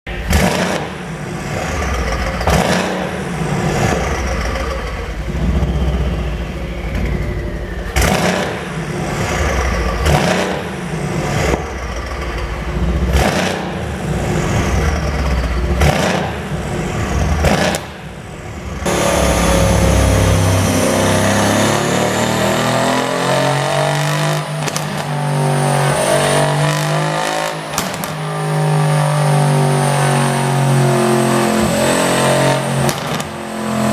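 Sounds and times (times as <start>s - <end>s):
car engine revving: 0.1s - 33.9s
exhaust pops and crackles: 24.6s - 25.2s, 27.7s - 28.3s, 32.8s - 33.4s.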